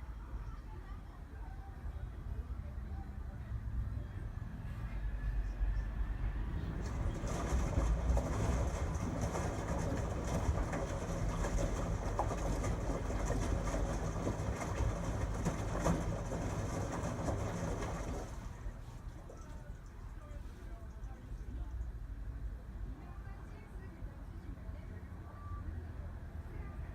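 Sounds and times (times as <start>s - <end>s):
washing machine motor hum: 6.5s - 21.1s
drum clicks and rattles: 6.7s - 19.6s.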